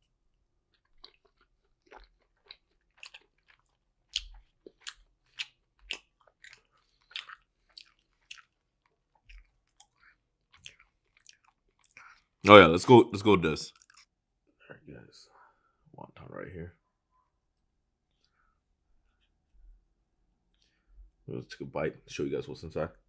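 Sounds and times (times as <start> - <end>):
person chewing: 0.0 - 12.5, 13.7 - 14.2.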